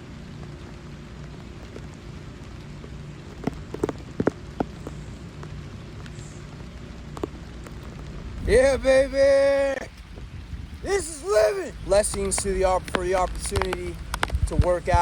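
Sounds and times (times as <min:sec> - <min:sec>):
steady rain falling: 0:00.0 - 0:15.0
sharp taps: 0:12.0 - 0:15.0.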